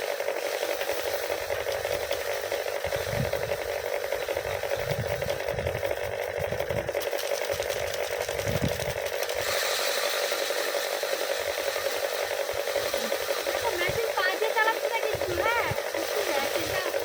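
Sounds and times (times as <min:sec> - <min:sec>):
rattling hiss of rice threshing: 0:00.0 - 0:17.0
threshing machine humming: 0:00.0 - 0:17.0.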